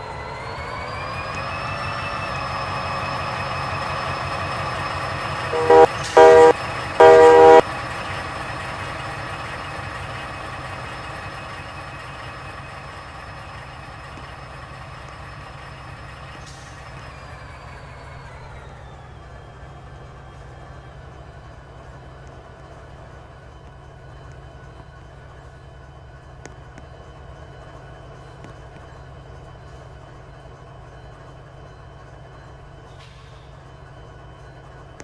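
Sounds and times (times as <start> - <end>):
train running drone: 0.0 - 35.0
train horn blasts: 5.5 - 7.6.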